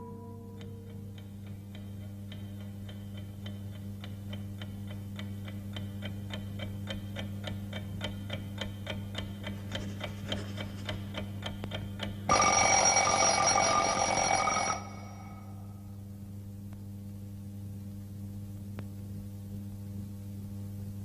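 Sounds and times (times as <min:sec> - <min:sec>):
alarm clock bell ringing: 0:12.3 - 0:15.6.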